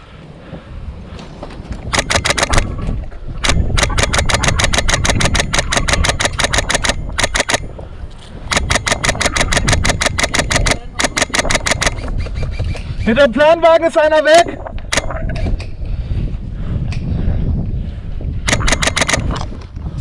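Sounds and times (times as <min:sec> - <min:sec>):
airsoft gun firing bursts: 0:01.8 - 0:07.8, 0:08.4 - 0:12.2, 0:14.4 - 0:15.4, 0:18.5 - 0:19.6
wind rumble on microphone: 0:11.9 - 0:18.5.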